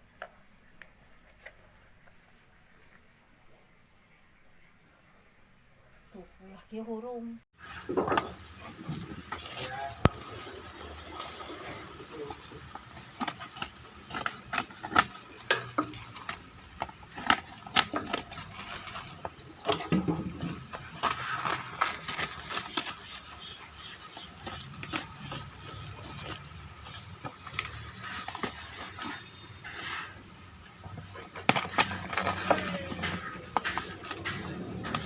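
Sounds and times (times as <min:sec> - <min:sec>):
faint steady hum: 0:00.0 - 0:35.0
objects being handled: 0:07.6 - 0:35.0.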